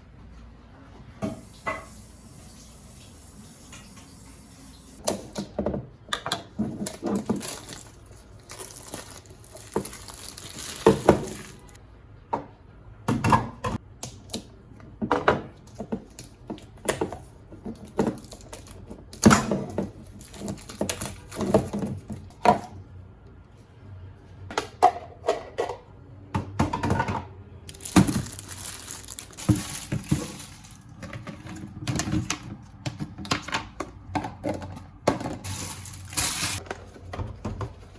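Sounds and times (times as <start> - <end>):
kitchen items knocking and clattering: 5.0 - 13.8, 14.9 - 22.8, 24.5 - 37.9
rustling: 27.7 - 31.0.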